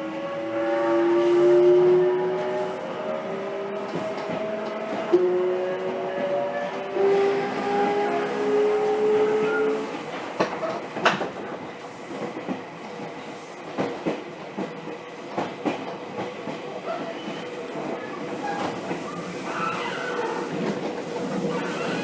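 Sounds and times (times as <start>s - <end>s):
train inverter whine: 0.0s - 11.2s
train running noise: 0.0s - 22.0s.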